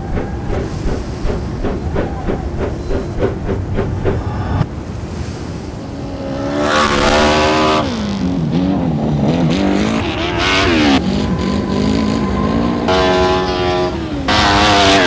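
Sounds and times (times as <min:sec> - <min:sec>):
dirt bike engine revving: 0:00.0 - 0:04.7, 0:05.6 - 0:15.0.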